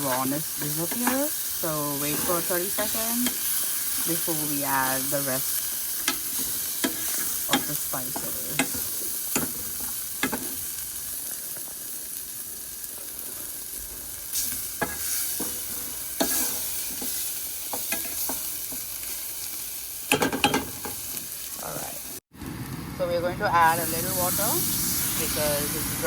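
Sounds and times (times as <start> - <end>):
spoon scraping a pan: 0.0 - 4.4, 5.4 - 10.6, 14.3 - 19.2
food sizzling in a pan: 0.0 - 26.0.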